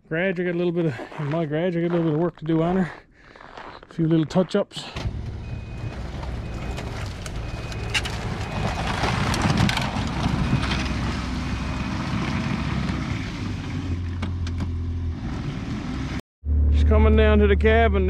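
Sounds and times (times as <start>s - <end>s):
faint high reverse warning beeps: 5.4s - 8.8s.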